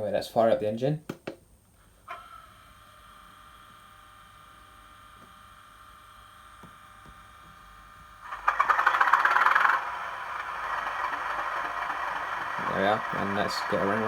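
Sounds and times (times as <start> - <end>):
faint steady hum: 0.0 - 14.0
diesel engine starting up: 8.2 - 14.0.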